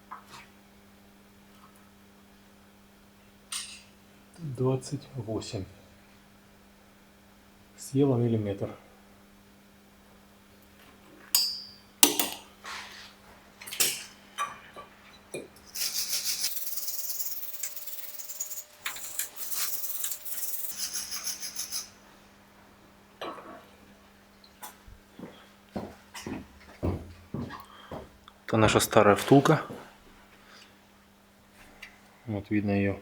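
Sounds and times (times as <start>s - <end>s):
scratchy rattling and scraping: 15.8s - 21.9s.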